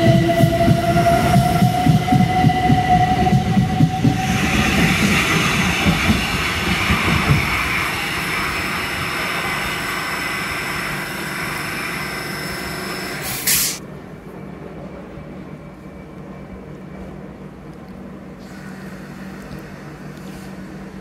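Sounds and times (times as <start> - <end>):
train high whine: 0.0 - 21.0
short sharp hiss: 13.2 - 13.8.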